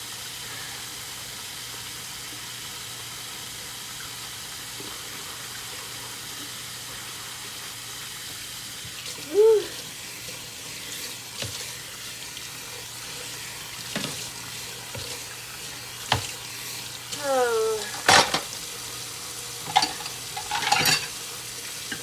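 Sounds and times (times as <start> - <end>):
dishes clinking in sink: 13.9 - 14.4, 17.6 - 18.6, 19.5 - 22.0
dishes clattering: 17.8 - 18.6, 19.6 - 21.2.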